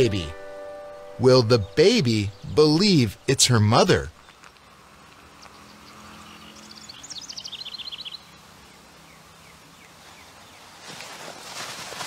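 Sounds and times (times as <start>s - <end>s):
songbird singing falling notes: 0.0s - 8.3s.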